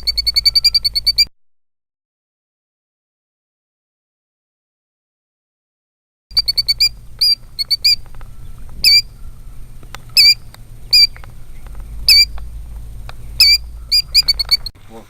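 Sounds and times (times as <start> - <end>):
bird alarm calls: 0.0 - 1.3, 6.3 - 15.0
low steady rumble: 0.0 - 1.3, 6.3 - 15.0.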